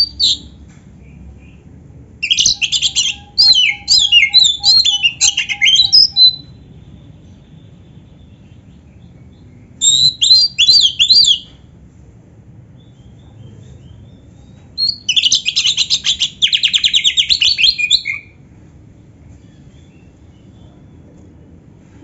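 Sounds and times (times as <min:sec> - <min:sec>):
bird rapid trill: 0:00.0 - 0:00.5, 0:02.2 - 0:06.6, 0:09.4 - 0:11.5, 0:14.8 - 0:18.4
bird whistling song: 0:00.0 - 0:00.6, 0:02.2 - 0:11.6, 0:14.8 - 0:18.4.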